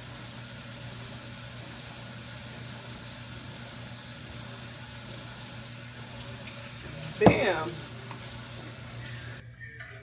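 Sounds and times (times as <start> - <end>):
tap running into sink: 6.2 - 8.6.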